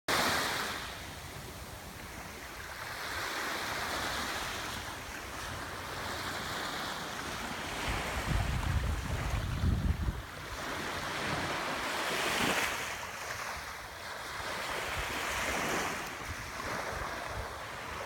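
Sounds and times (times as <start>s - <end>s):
waves breaking on beach: 0.1s - 18.0s
wind buffeting microphone: 7.8s - 11.7s.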